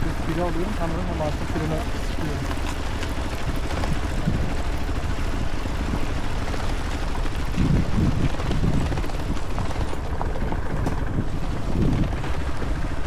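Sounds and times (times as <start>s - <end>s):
motorcycle engine rumble: 0.0s - 13.0s
wind rush on microphone: 0.0s - 13.0s.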